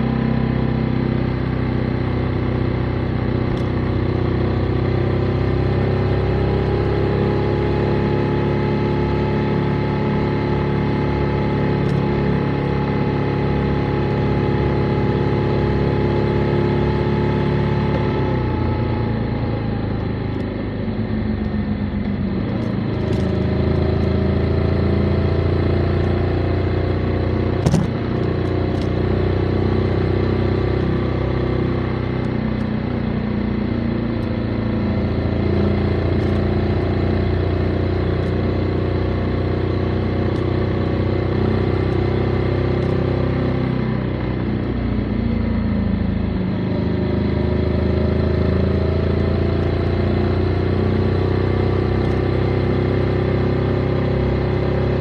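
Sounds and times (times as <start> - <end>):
motorcycle engine running: 0.0 - 55.0
sharp click: 27.7 - 28.0.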